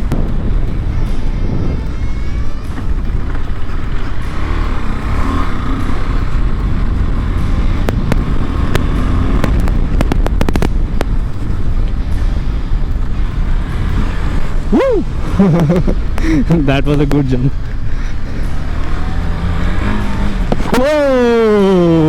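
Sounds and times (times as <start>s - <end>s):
motorcycle engine rumbling: 0.0s - 22.0s
sharp clicks and knocks: 7.4s - 12.0s.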